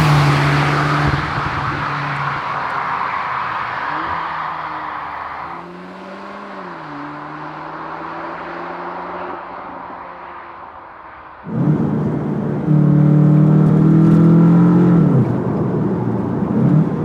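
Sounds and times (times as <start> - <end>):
car engine running: 0.0 - 5.3, 11.5 - 17.0
tyre and wind rushing noise: 0.0 - 5.4, 11.4 - 17.0.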